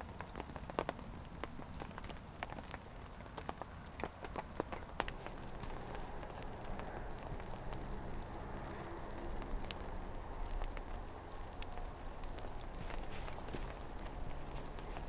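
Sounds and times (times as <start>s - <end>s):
rain and sleet striking a surface: 0.0s - 15.0s.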